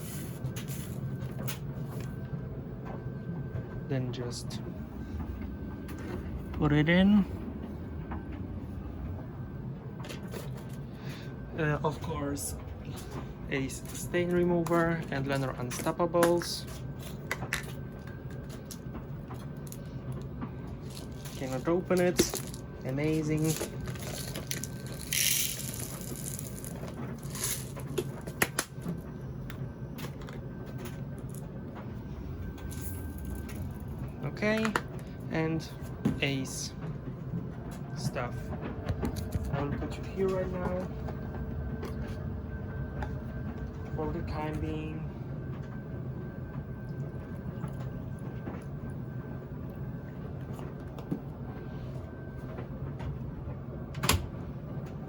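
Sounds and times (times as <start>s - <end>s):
steady low hum: 0.0s - 55.0s
plastic containers rustling: 20.8s - 29.0s.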